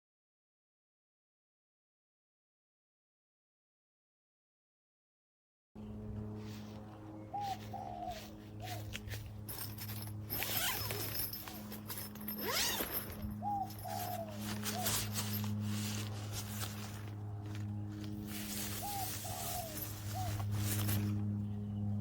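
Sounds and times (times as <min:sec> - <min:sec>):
steady low hum: 0:05.8 - 0:22.0
dove cooing: 0:07.3 - 0:08.9, 0:12.5 - 0:16.7, 0:18.3 - 0:21.1.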